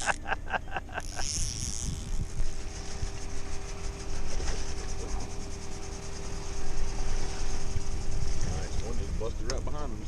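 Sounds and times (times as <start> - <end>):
boat motor hum: 0.0 - 10.0
wind noise on microphone: 1.2 - 3.6.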